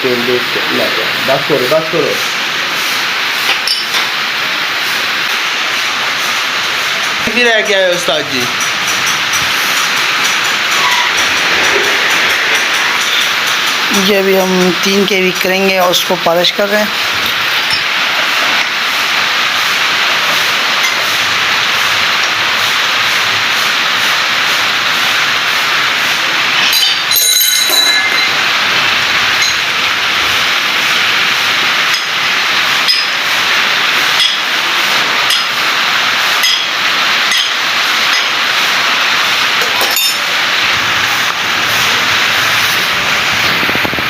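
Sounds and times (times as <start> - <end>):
hissing grind of polishing: 6.2 - 19.0
metallic clinks: 26.7 - 28.4.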